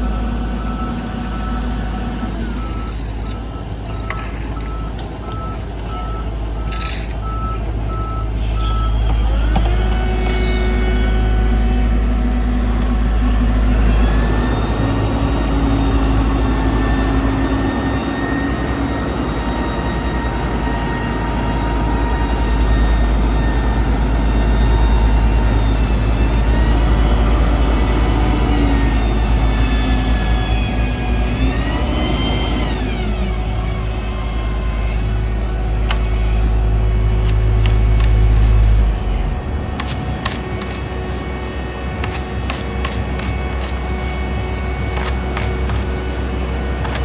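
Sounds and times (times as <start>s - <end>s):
diesel construction equipment rumbling: 0.0s - 47.0s
engine revving: 0.0s - 47.0s
backup alarm beeping: 0.1s - 9.6s.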